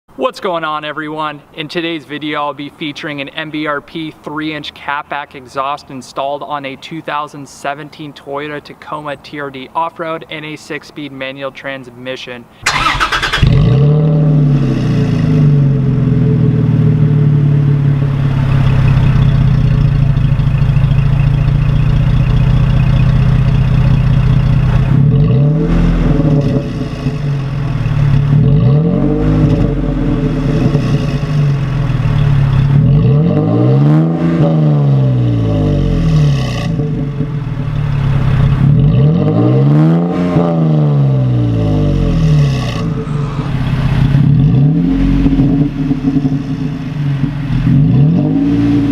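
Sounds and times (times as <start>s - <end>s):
car engine idling and revving: 12.6s - 48.9s.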